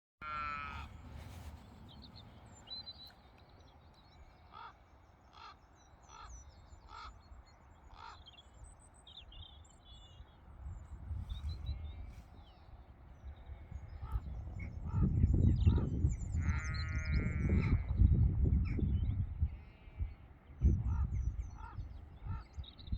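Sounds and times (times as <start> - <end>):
crows cawing: 0.2 - 1.0, 4.4 - 7.2, 7.9 - 8.3, 20.9 - 22.5
small birds chirping: 0.2 - 17.9
wind rumble on microphone: 10.2 - 22.9.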